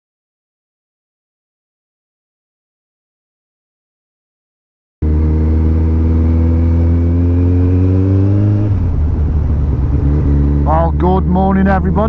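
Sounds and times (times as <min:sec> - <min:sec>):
motorcycle engine accelerating: 0:05.0 - 0:12.0.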